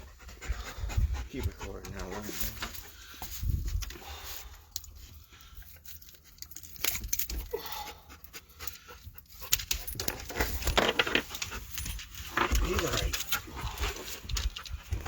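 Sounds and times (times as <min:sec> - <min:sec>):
dog panting: 0:00.0 - 0:03.4, 0:07.8 - 0:09.9, 0:13.2 - 0:15.0.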